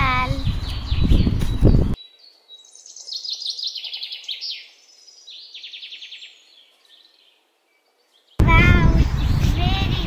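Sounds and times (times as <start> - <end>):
songbird trilling: 0.7 - 8.4.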